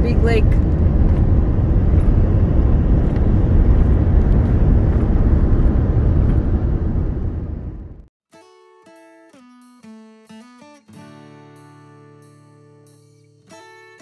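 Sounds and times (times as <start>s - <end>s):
vehicle road and engine noise: 0.0s - 8.1s.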